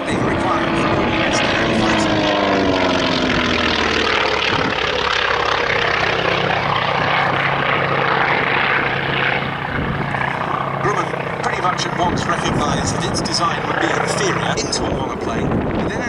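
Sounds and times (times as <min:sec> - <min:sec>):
propeller plane droning past: 0:00.0 - 0:16.0.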